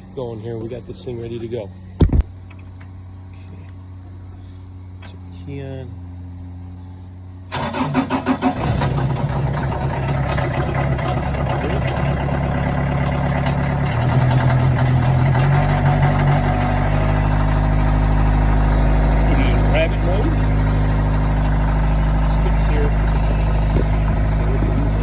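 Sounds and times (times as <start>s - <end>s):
diesel engine cranking and running: 0.0s - 25.0s.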